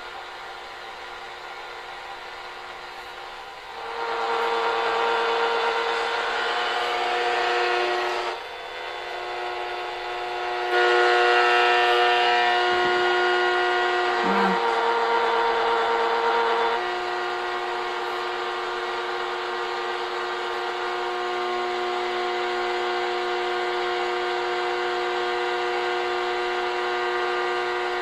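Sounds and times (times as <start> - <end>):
droning radio tones: 2.9 - 28.0
radio static hiss: 14.0 - 14.9.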